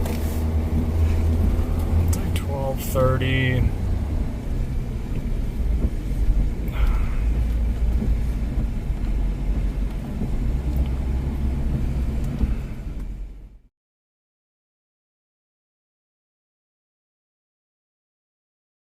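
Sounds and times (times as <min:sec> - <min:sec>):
truck engine and road rumble: 0:00.0 - 0:13.7.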